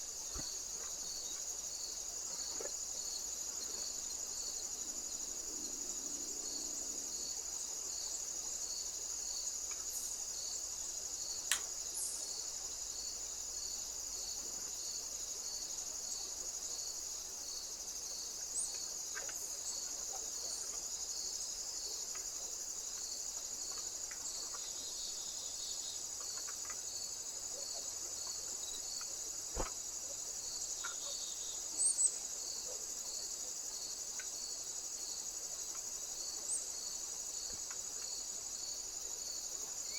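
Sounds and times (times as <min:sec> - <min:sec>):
high-pitched insect chorus: 0:00.0 - 0:39.9
slow pulsing insect call: 0:00.0 - 0:39.9.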